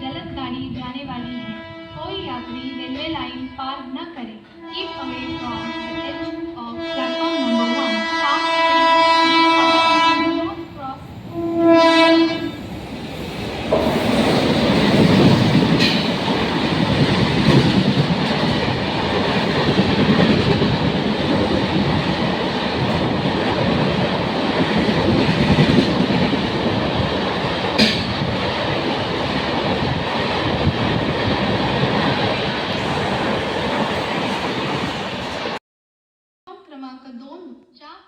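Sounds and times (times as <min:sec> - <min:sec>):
train wheels rumbling on rails: 0:10.6 - 0:35.6.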